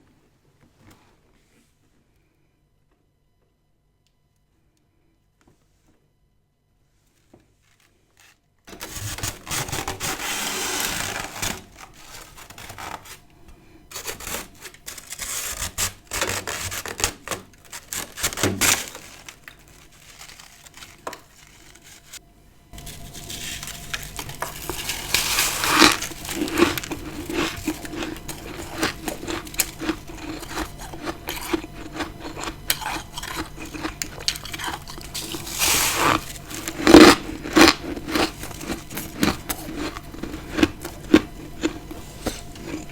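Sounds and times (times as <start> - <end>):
frost crunching: 8.7 - 22.2, 22.8 - 42.9
frost scraping: 8.7 - 22.2, 22.8 - 42.9
frost crackling: 8.8 - 22.2, 22.8 - 42.9.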